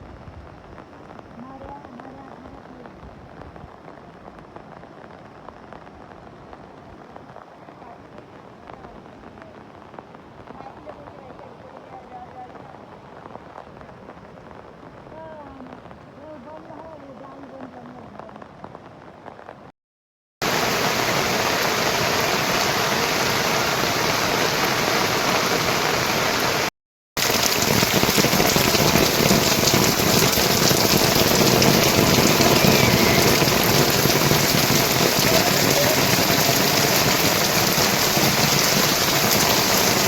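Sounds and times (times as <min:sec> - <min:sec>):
heavy rain falling: 0:20.4 - 0:40.0.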